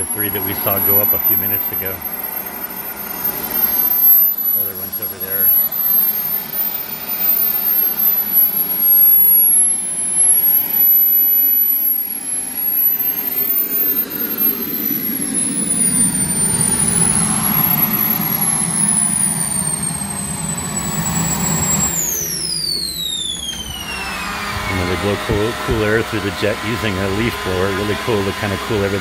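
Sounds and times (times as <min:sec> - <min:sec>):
model jet turbine whining: 0:00.0 - 0:29.0.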